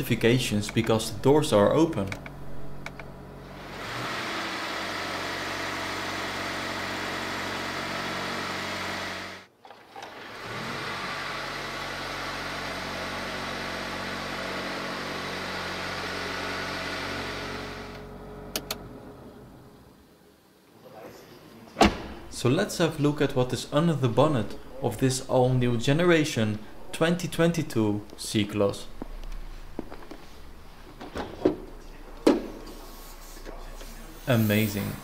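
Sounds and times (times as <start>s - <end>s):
clicks: 0.6s - 1.0s, 1.8s - 3.1s
steady hiss: 32.5s - 35.0s.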